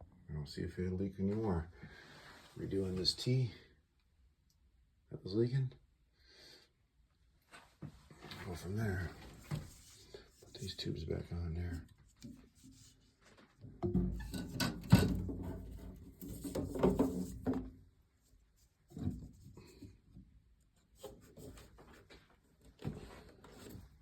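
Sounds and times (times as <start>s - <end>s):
hands rubbing and scraping parts: 14.2s - 17.6s.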